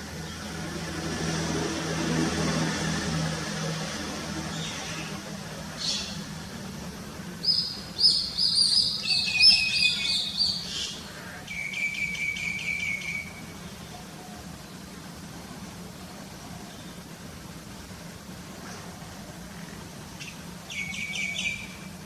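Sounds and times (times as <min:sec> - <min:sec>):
buzzy pulsing bird call: 0:04.4 - 0:06.6, 0:07.4 - 0:17.2, 0:18.5 - 0:22.0.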